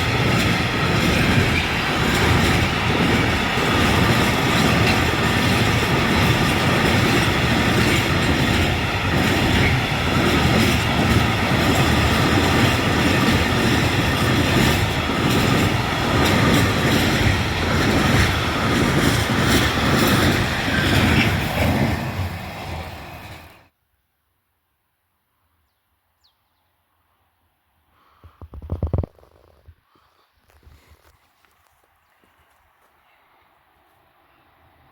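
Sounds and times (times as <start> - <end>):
wheels clattering on rail: 0.0 - 23.6.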